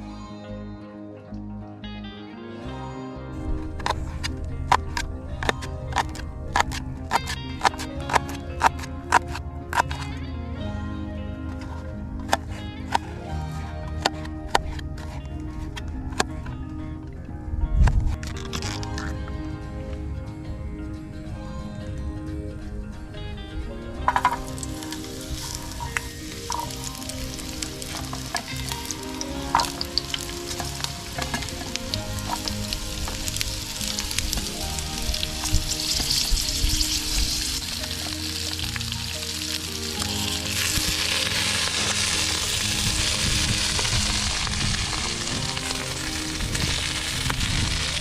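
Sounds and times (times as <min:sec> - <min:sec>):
utensil clicks: 0:03.8 - 0:10.1
food sizzling in a frying pan: 0:24.5 - 0:48.0.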